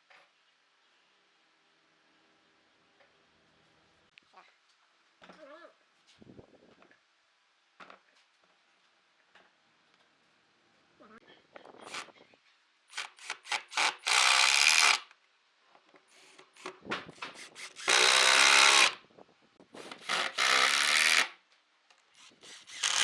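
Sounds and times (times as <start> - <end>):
power tool bursts: 12.9 - 15.1, 16.2 - 19.0, 19.8 - 21.4, 22.2 - 23.0.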